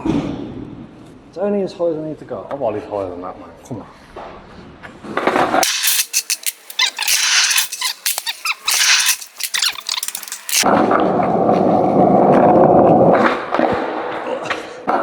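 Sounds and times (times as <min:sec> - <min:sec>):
rapid sharp clicks and knocks: 0:05.6 - 0:10.6.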